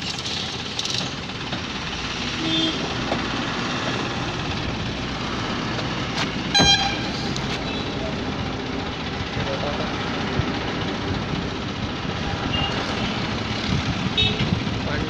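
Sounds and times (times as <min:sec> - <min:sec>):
tractor engines running: 0:00.0 - 0:15.0
horn toot: 0:06.5 - 0:07.3.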